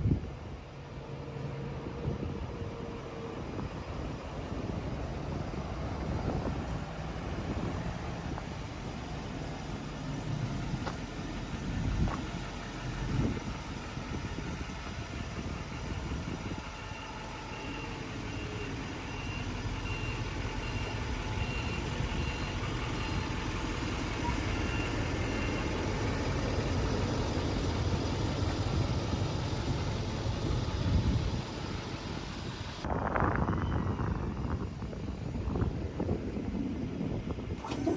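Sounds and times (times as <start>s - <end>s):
truck engine idling: 0.0s - 37.9s
reversing alarm beeping: 15.4s - 32.7s.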